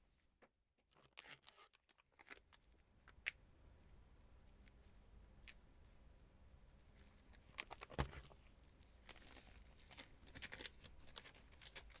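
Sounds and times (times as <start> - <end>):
gloved hands crinkling: 6.7 - 12.0.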